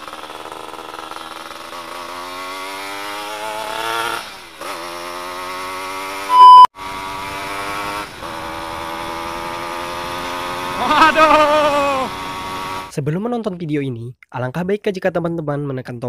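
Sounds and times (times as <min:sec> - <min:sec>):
two-stroke engine revving: 0:00.0 - 0:12.9
loud high beep: 0:06.3 - 0:06.7.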